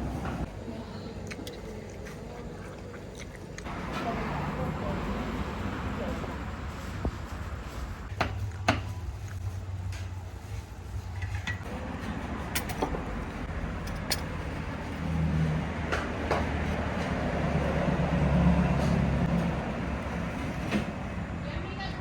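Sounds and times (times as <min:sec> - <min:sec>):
vehicle engine passing: 0:03.6 - 0:08.1, 0:11.7 - 0:21.6.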